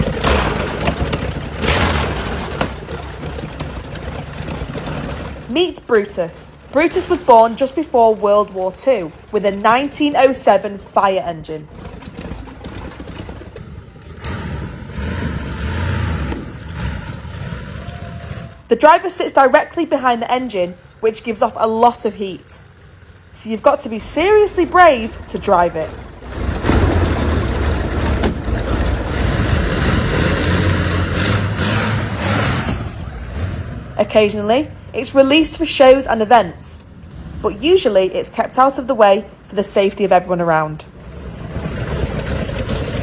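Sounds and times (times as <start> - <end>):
aircraft engine deep rumble: 0.0 - 18.7
aircraft engine rumbling: 0.0 - 43.0.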